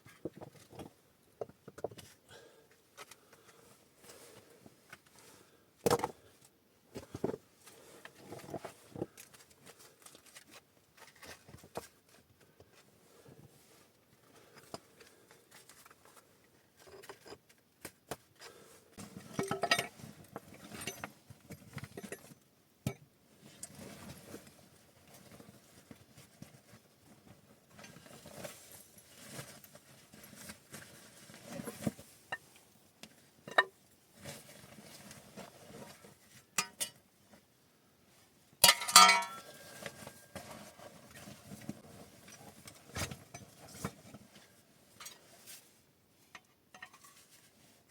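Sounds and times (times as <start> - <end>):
clinks of hard objects: 19.3 - 20.0, 33.5 - 33.7, 36.6 - 37.0, 38.6 - 40.1, 46.3 - 47.2.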